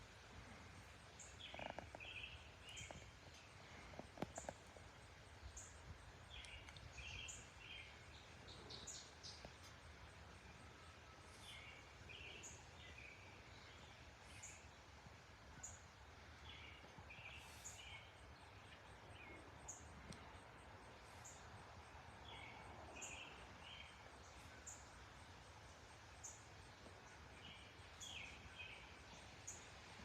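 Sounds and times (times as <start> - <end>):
birds chirping: 0.4 - 9.8.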